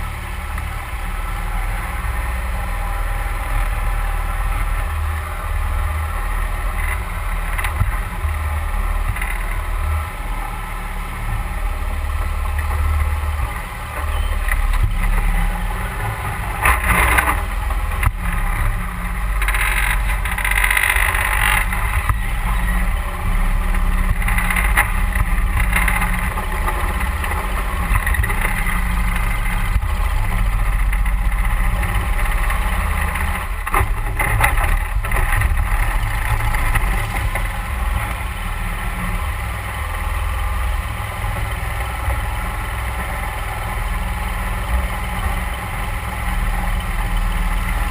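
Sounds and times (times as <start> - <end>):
boat motor running: 0.0 - 47.9.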